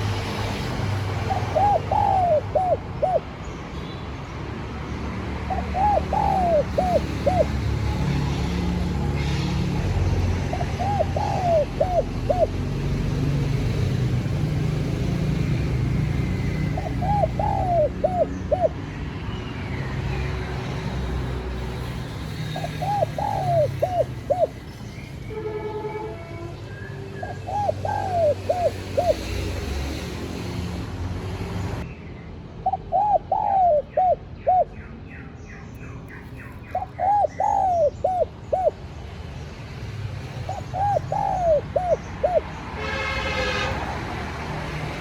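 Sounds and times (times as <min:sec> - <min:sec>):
dove cooing: 0:01.1 - 0:03.4, 0:05.5 - 0:08.0, 0:10.4 - 0:13.6, 0:16.2 - 0:18.8, 0:22.4 - 0:24.6, 0:27.3 - 0:29.4, 0:32.6 - 0:34.7, 0:36.7 - 0:38.8, 0:40.4 - 0:42.5.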